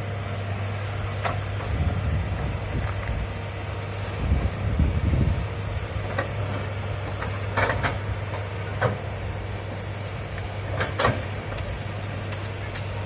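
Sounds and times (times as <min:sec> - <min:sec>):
excavator diesel engine running: 0:00.0 - 0:13.0
sharp knocks and cracks: 0:07.1 - 0:08.0, 0:10.4 - 0:13.0.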